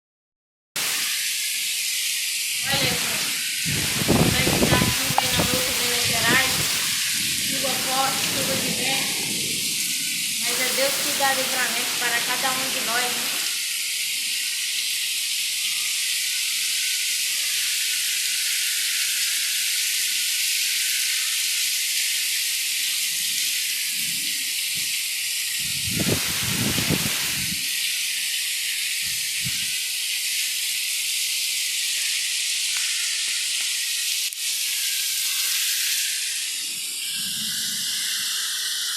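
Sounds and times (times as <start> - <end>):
heavy rain falling: 2.5 - 14.3, 23.1 - 38.6.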